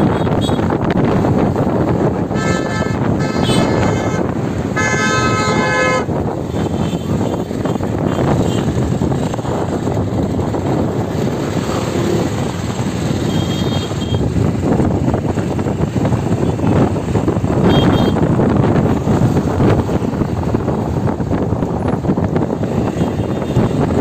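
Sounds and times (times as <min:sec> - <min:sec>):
road and wind noise: 0:00.0 - 0:24.0
vehicle horn blaring: 0:02.3 - 0:07.4, 0:13.2 - 0:14.2, 0:17.6 - 0:18.2.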